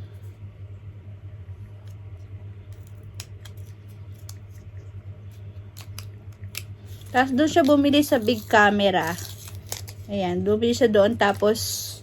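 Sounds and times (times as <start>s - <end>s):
steady low hum: 0.0s - 12.0s
packaging clicks: 2.7s - 4.6s, 5.7s - 10.1s.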